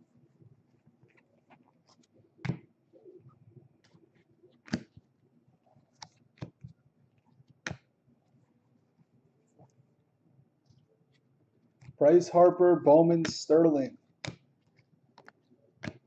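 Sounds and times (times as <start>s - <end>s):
cards tapping and clicking: 4.6s - 5.1s, 5.9s - 6.8s, 13.2s - 13.5s, 14.2s - 16.0s.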